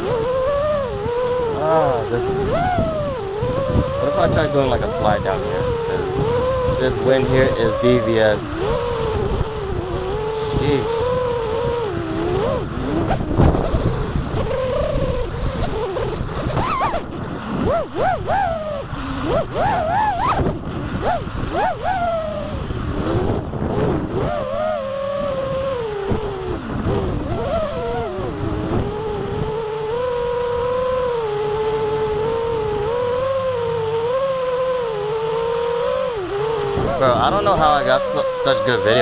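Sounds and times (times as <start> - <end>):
low wind rumble: 0.0 - 39.0
quadcopter motors whining: 0.0 - 39.0.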